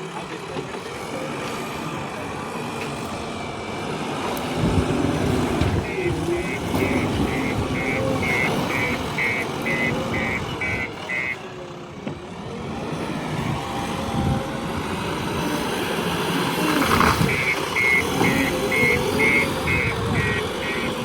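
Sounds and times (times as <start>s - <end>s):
heavy vehicle engine running: 0.0s - 21.0s
repeating electronic beep: 5.8s - 11.4s, 17.3s - 21.0s.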